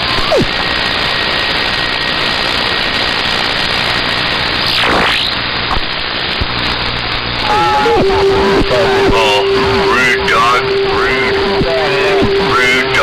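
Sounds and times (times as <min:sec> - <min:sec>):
radio static hiss: 0:03.5 - 0:13.0
faint steady whistle: 0:07.5 - 0:13.0.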